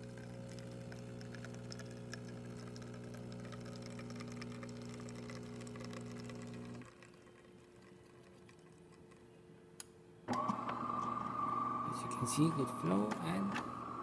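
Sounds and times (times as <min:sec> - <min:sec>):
espresso machine pump humming: 0:00.0 - 0:07.6, 0:10.3 - 0:14.0
faint water trickle: 0:00.0 - 0:09.7.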